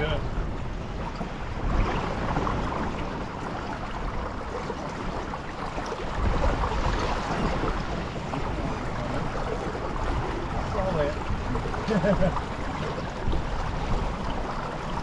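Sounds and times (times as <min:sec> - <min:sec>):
water splashing along boat hull: 0:00.0 - 0:15.0
wind buffeting microphone: 0:00.0 - 0:15.0.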